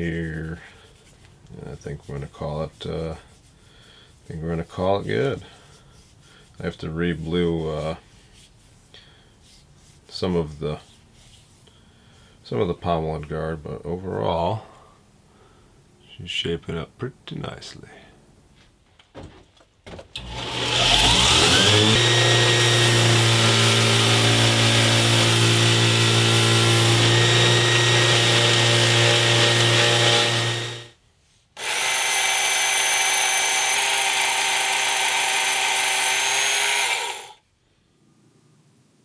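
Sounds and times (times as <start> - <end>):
electric power tool running: 20.2 - 30.9, 31.6 - 37.4.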